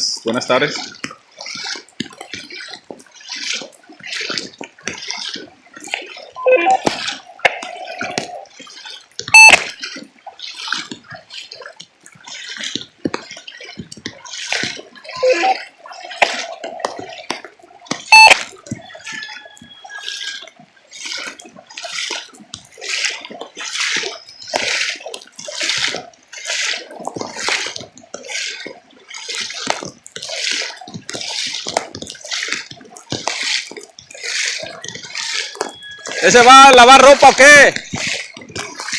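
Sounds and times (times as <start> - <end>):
water rushing and splashing: 0.0 - 38.9
brief tones: 6.4 - 8.4, 9.3 - 9.6, 15.1 - 15.7, 18.1 - 18.4, 35.3 - 36.2.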